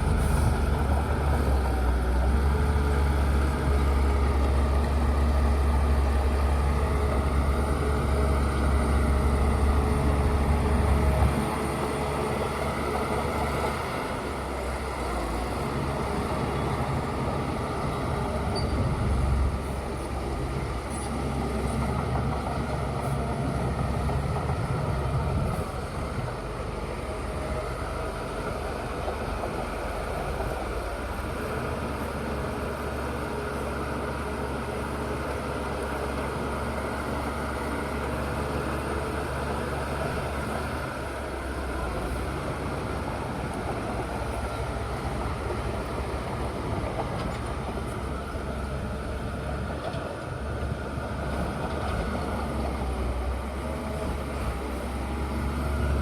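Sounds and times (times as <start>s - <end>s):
bulldozer diesel engine droning: 0.0s - 56.0s.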